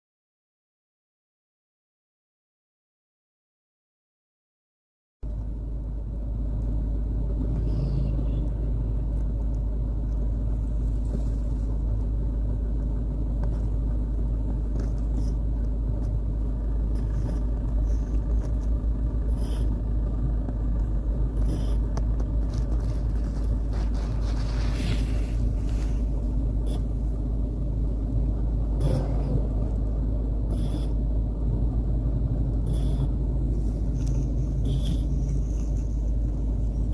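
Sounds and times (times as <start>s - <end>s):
dog snoring: 19.3s - 19.7s, 21.4s - 21.9s, 30.5s - 31.0s, 32.6s - 33.2s, 34.0s - 35.5s.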